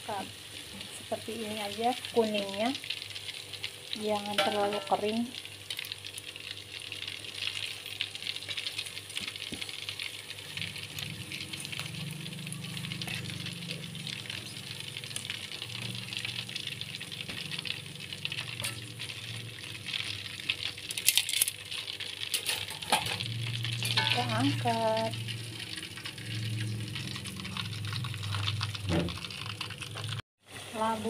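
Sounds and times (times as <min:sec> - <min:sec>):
oil sizzling in a pan: 0:00.0 - 0:31.0
metal utensil clinking: 0:22.3 - 0:24.4.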